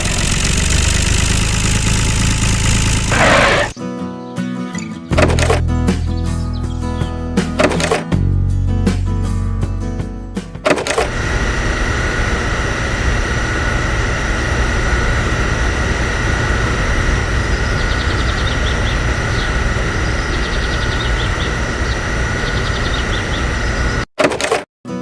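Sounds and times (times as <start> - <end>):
electric motor whining: 0.0 - 3.8, 10.7 - 24.1.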